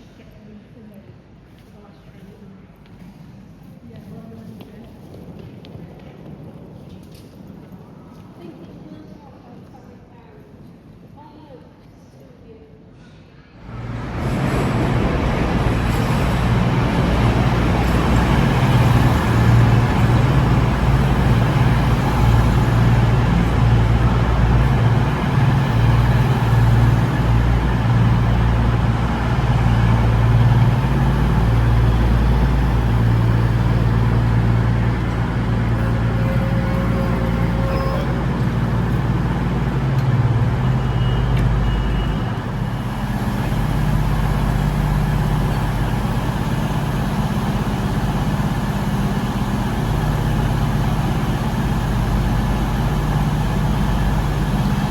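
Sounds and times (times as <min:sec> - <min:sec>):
diesel train engine humming: 0:13.6 - 0:54.9.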